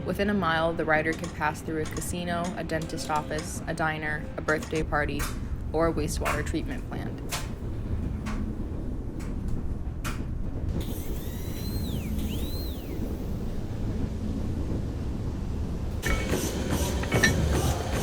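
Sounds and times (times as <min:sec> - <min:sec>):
train rumbling: 0:00.0 - 0:18.0
wheels clacking on rail joints: 0:00.1 - 0:03.8, 0:04.4 - 0:10.6, 0:16.0 - 0:18.0.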